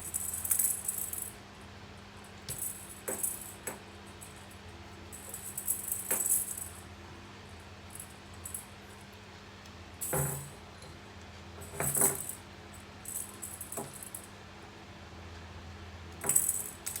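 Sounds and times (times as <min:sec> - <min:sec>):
cat toy jingling and rattling: 0:05.2 - 0:06.8, 0:11.6 - 0:12.4, 0:13.1 - 0:14.2, 0:16.2 - 0:17.0.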